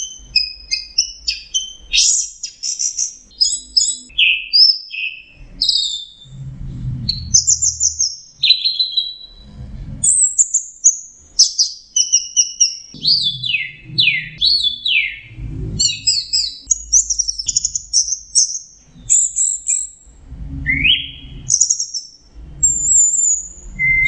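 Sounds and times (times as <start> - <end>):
low rumble: 6.2 - 8.5, 9.3 - 10.3, 13.0 - 17.9, 20.0 - 24.0.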